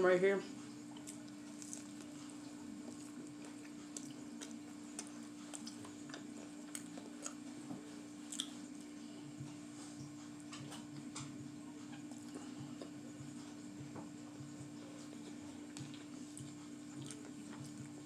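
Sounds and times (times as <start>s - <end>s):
steady low hum: 0.0s - 18.0s
chewing and biting food: 0.9s - 8.9s, 14.4s - 18.0s.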